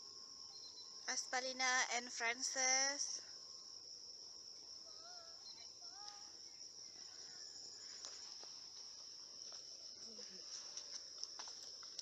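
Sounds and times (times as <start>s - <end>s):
insects droning: 0.0s - 12.0s
faint wavering calls: 4.8s - 8.3s.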